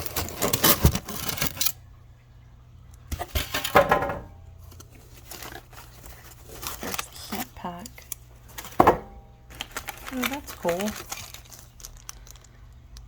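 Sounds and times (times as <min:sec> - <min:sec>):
packing material clattering: 0:00.0 - 0:01.8, 0:04.7 - 0:12.7
packing material rustling: 0:00.0 - 0:01.8, 0:04.6 - 0:13.0.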